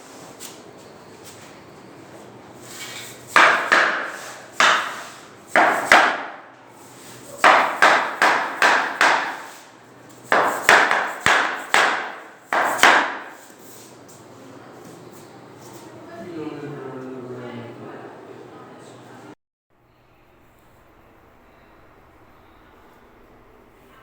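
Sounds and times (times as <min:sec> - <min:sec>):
hammer striking wood: 0:03.3 - 0:06.5, 0:07.4 - 0:09.6, 0:10.3 - 0:13.4.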